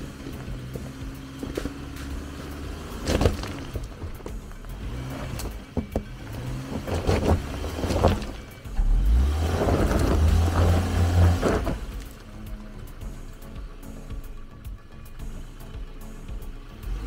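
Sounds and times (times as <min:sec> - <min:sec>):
stones crunching under tyres: 0:00.0 - 0:13.1
car engine labouring and revving: 0:00.0 - 0:17.0.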